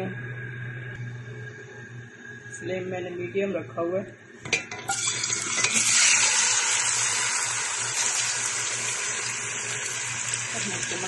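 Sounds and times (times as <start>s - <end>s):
chicken sizzling in hot oil: 4.9s - 11.0s.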